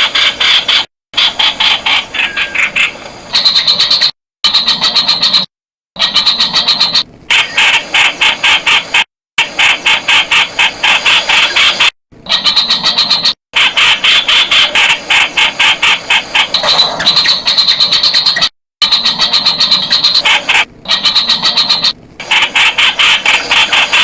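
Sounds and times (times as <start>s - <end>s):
bird calling in sharp repeated notes: 0.1s - 7.8s, 16.4s - 22.0s.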